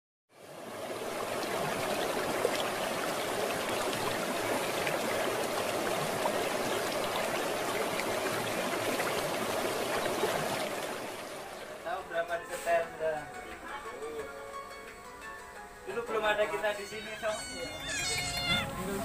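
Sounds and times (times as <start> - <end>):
sea water rushing at shore: 0.4 - 11.9.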